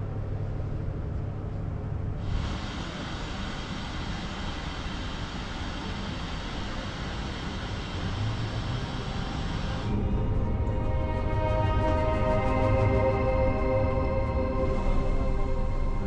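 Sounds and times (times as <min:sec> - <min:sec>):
ship engines low rumble: 0:00.1 - 0:16.0.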